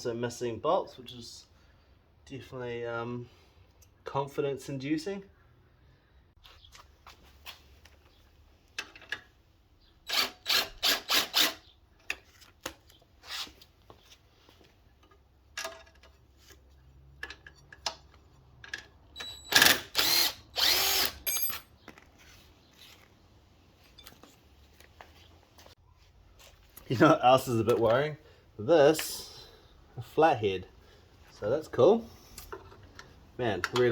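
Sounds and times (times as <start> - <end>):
metal parts clicking and knocking: 15.0 - 16.2, 17.2 - 19.9
power drill running: 19.2 - 21.6.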